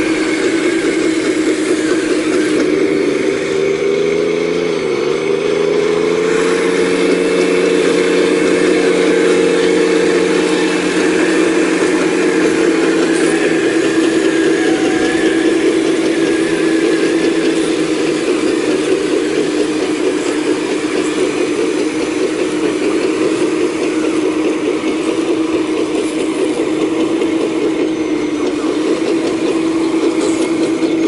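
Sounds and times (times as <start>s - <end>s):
excavator diesel engine running: 0.0s - 31.0s
hydraulic whine: 0.0s - 31.0s.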